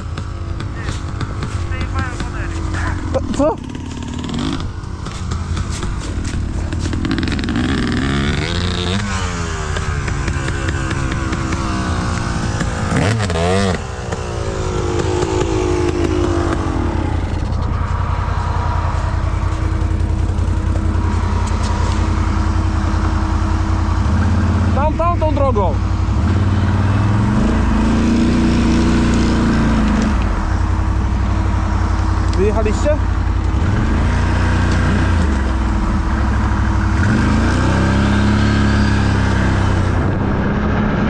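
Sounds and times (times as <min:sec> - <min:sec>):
atv engine revving: 0:00.0 - 0:41.0.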